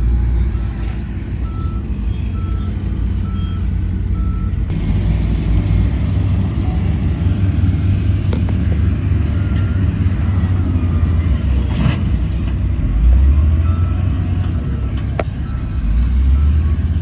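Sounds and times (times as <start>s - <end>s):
diesel construction machine running: 0.0s - 17.0s
reversing alarm beeping: 0.4s - 4.7s, 8.7s - 11.7s, 13.1s - 17.0s.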